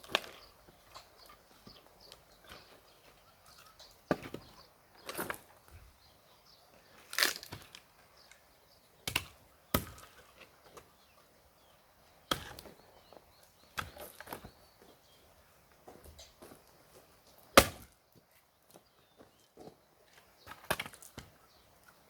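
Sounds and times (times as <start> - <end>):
wood cracking and splintering: 7.1 - 7.8
axe chopping wood: 9.0 - 10.2, 12.3 - 12.7, 17.5 - 18.0, 20.5 - 21.3.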